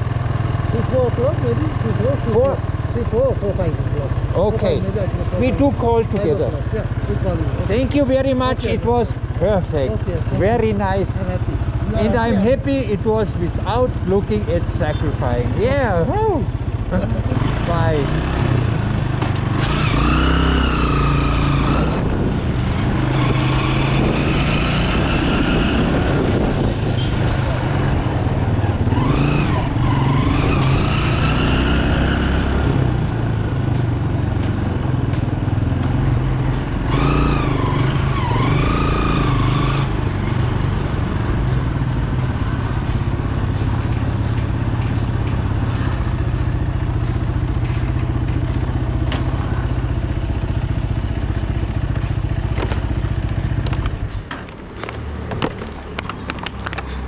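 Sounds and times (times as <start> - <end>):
motorcycle engine rumbling: 0.0 - 57.0
clicks and knocks: 53.6 - 57.0.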